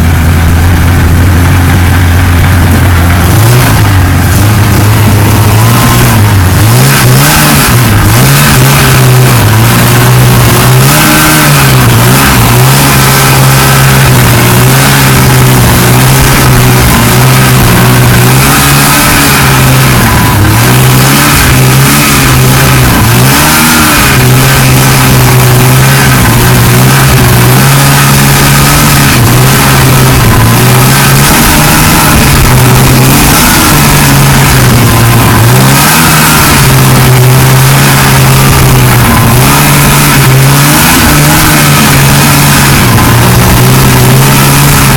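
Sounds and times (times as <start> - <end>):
snowmobile engine revving: 0.0 - 44.9
steady rushing noise: 0.0 - 44.9.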